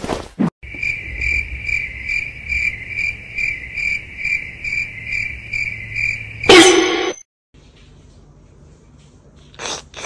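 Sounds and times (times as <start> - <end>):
cricket chirping: 0.6 - 7.2.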